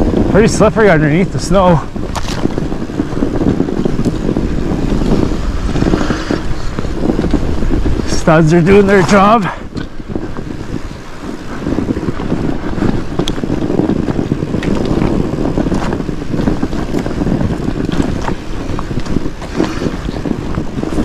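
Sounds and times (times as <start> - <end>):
tyres crunching through snow: 0.0 - 21.0
wind on microphone: 0.0 - 21.0
bike clicks and knocks: 12.1 - 20.7.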